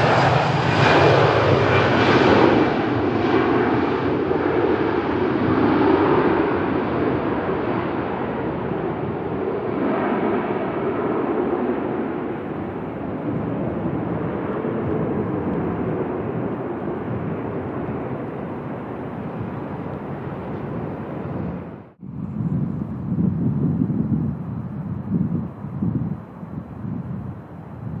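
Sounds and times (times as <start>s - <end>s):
jet engine roar: 0.0s - 28.0s.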